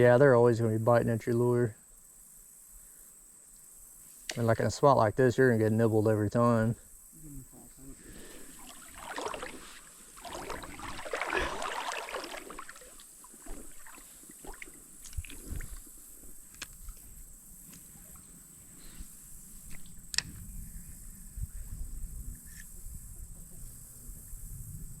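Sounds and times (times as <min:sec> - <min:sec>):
water swishing against boat: 0:08.0 - 0:15.9.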